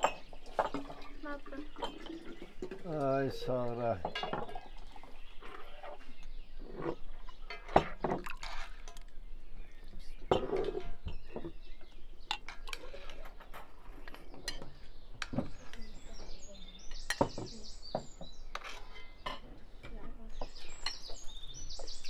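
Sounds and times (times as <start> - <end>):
tableware clinking: 0.0 - 1.1, 4.0 - 4.7.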